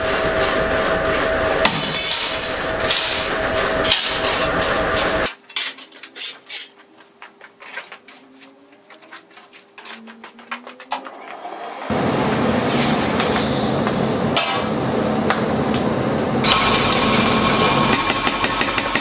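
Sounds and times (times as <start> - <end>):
loud rushing noise with hum: 11.4 - 18.0.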